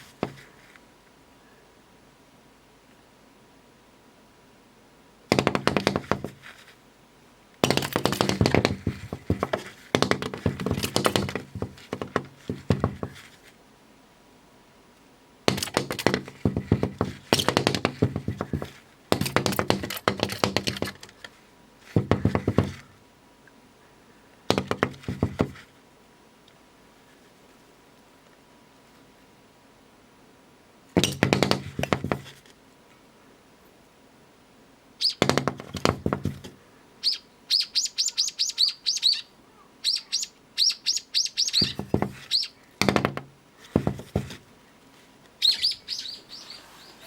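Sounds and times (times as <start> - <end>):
bird knocking on glass: 7.6 - 13.2, 15.5 - 21.0, 22.0 - 22.8, 41.6 - 42.2, 42.8 - 44.4.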